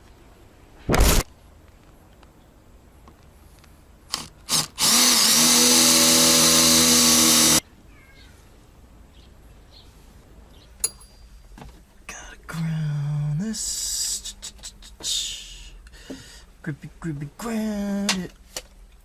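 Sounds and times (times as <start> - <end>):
power drill running: 4.1 - 7.6.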